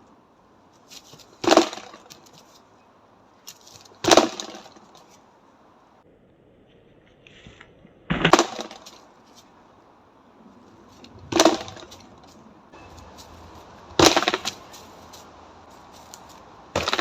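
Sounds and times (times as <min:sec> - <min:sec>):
strikes thudding on dry wood: 0:01.1 - 0:02.3, 0:03.8 - 0:05.0, 0:08.1 - 0:09.0, 0:11.3 - 0:12.0, 0:12.8 - 0:17.0.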